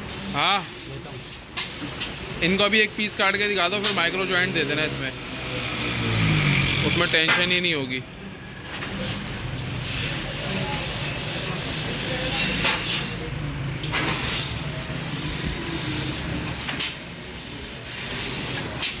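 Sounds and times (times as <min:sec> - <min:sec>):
hiss of cutting gas: 0:00.0 - 0:07.4, 0:08.6 - 0:13.0, 0:13.9 - 0:19.0.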